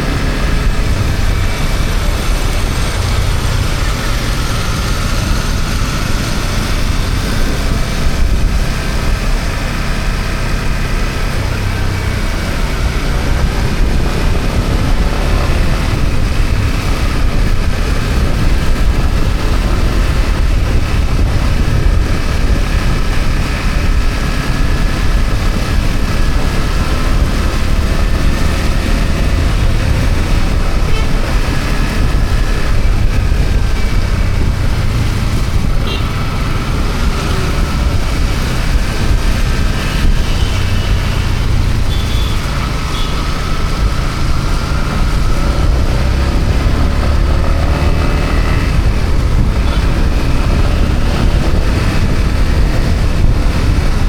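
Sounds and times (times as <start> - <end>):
low rumble: 0.0 - 54.0
motorcycle engine running: 0.0 - 54.0.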